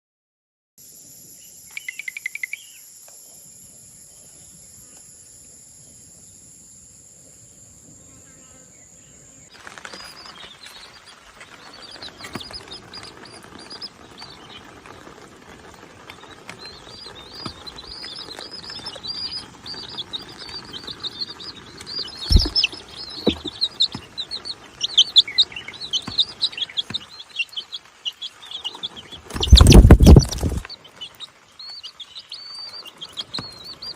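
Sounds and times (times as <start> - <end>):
small birds chirping: 0.9 - 33.9
loud thumps: 22.2 - 24.1, 29.3 - 30.6.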